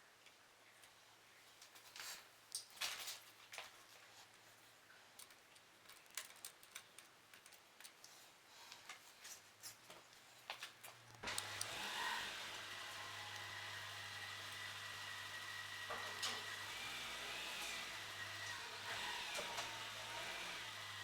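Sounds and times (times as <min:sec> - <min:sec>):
small metal parts clicking: 0:05.2 - 0:08.2
whirring machine: 0:11.2 - 0:21.0.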